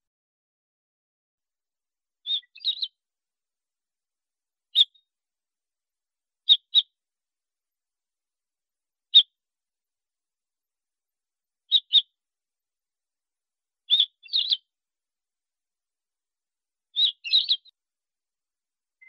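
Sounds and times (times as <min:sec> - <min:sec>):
finch chirping: 0:02.2 - 0:03.0, 0:04.7 - 0:05.0, 0:06.5 - 0:06.9, 0:11.7 - 0:12.1, 0:13.9 - 0:14.7, 0:16.9 - 0:17.7.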